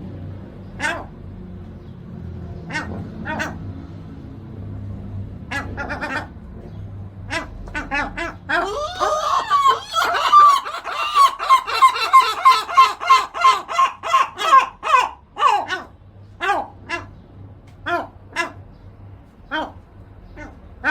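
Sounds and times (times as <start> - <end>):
gulls calling: 5.5 - 17.2.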